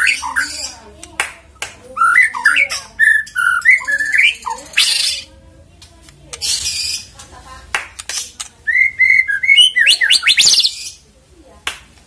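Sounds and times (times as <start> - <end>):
bird singing whistled notes: 2.0 - 5.3, 8.7 - 11.0.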